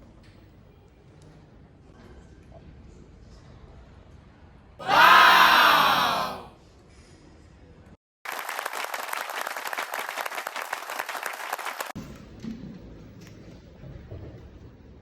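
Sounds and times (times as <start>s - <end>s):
quick clapping: 8.3s - 12.0s.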